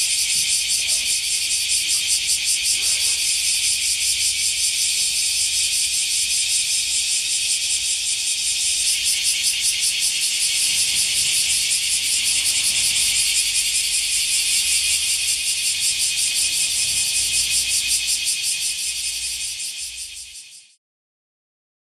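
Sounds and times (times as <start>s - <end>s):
cicada buzzing: 0.0s - 20.8s.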